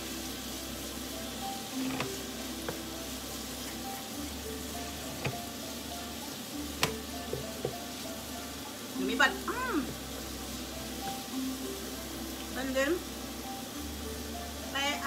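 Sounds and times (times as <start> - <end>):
meat sizzling in a frying pan: 0.0 - 15.0
wooden spatula stirring: 1.2 - 8.6
spatula knocking against pan: 6.8 - 7.8.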